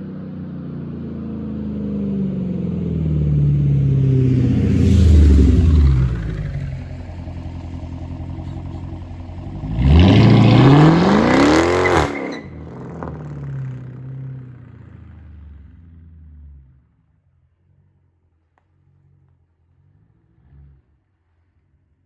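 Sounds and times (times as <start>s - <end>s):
car exhaust rumbling and revving: 1.0s - 21.8s.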